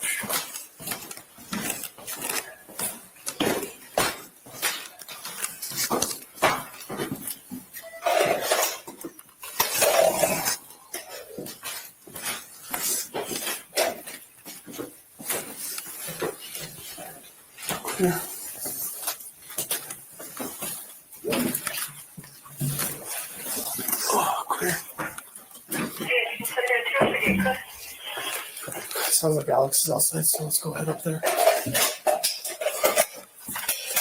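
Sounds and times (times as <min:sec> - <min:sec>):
footsteps: 0:00.0 - 0:09.4, 0:10.9 - 0:29.6.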